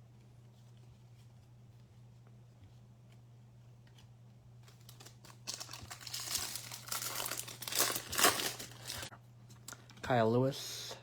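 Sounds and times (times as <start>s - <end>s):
foil wrapper crinkling and tearing: 4.7s - 9.1s.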